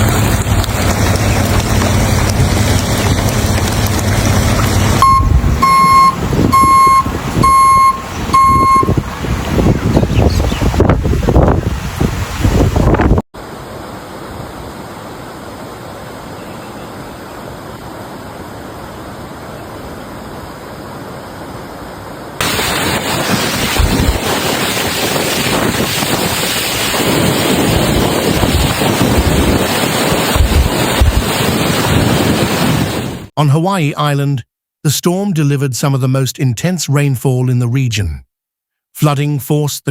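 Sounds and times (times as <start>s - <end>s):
wind thumping on microphone: 0.0s - 13.3s, 22.4s - 33.3s
rushing water: 0.0s - 33.3s.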